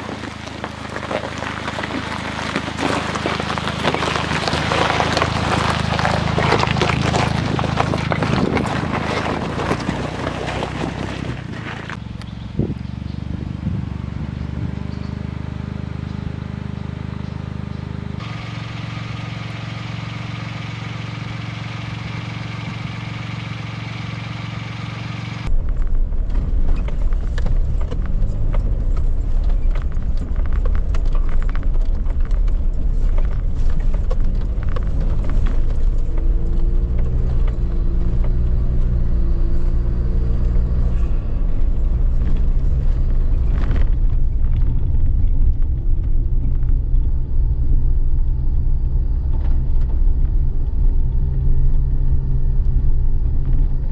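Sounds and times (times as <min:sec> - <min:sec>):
low rumble with crackles and rattles: 0:00.0 - 0:53.9
vehicle engine and road noise: 0:00.0 - 0:53.9.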